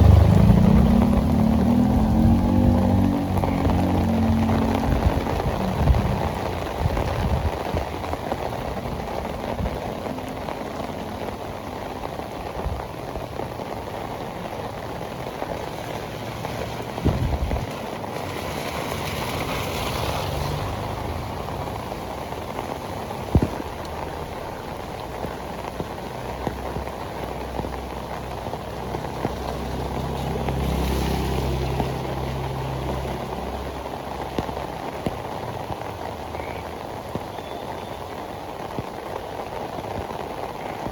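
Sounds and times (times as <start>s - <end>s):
low rumble: 0.0s - 7.5s
heavy rain on pavement: 0.0s - 40.9s.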